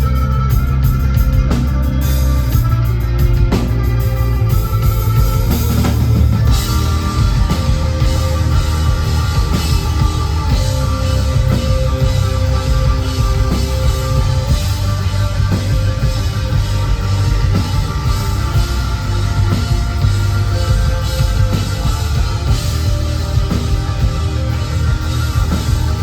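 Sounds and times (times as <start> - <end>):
rock band playing live: 0.0 - 26.0.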